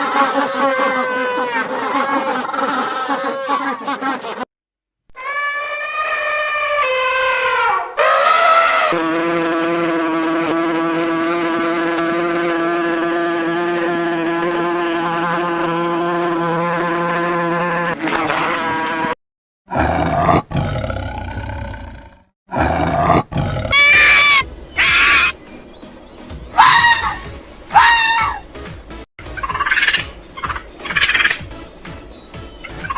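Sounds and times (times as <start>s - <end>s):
long animal call: 0.0s - 3.9s, 5.2s - 9.0s, 19.7s - 25.3s.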